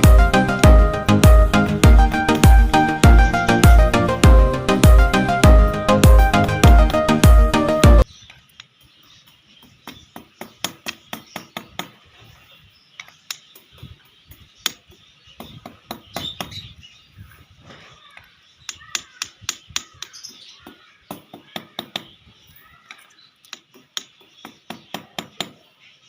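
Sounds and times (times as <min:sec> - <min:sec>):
small tools tapping and clicking: 0:13.0 - 0:13.7, 0:22.8 - 0:25.6.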